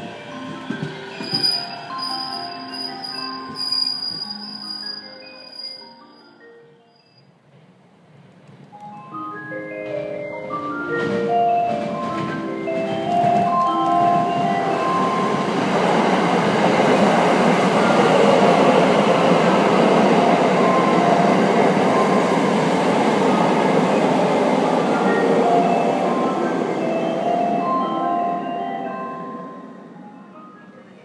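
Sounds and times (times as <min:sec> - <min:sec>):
background music with held notes: 0:00.0 - 0:07.2, 0:08.7 - 0:31.0
train wheels rumbling on rails: 0:09.8 - 0:27.6.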